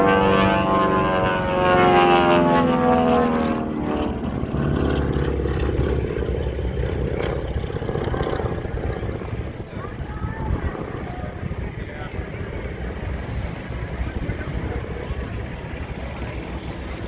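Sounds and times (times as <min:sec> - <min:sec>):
propeller airplane flying past: 0:00.0 - 0:17.0.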